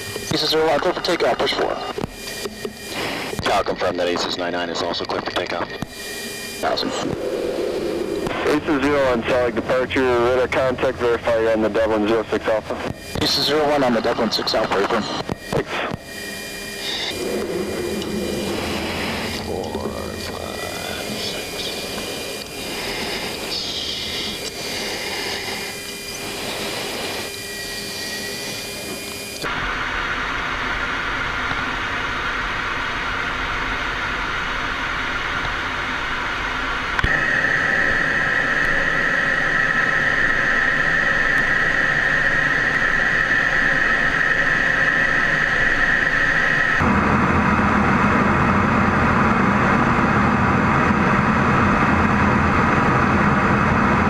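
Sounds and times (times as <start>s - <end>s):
high whine: 0.0s - 54.0s
jet engine and airflow rush: 0.0s - 54.0s
deep rumble: 6.6s - 12.0s, 17.0s - 25.6s, 46.7s - 54.0s.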